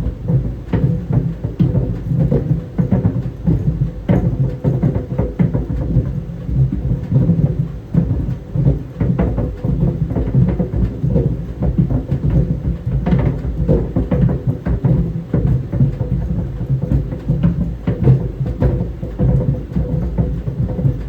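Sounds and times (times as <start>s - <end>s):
clothes dryer drum rumble: 0.0s - 21.0s.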